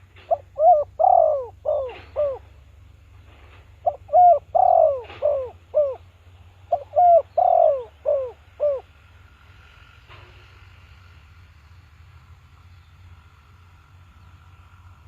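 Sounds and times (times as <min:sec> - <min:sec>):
dove cooing: 0:00.0 - 0:02.6, 0:03.4 - 0:08.9.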